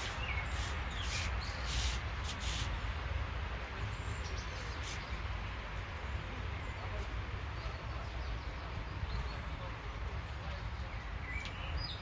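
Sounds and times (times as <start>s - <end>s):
bird chirps: 0.0s - 2.0s, 10.8s - 12.0s
steady rain hiss: 0.0s - 11.3s.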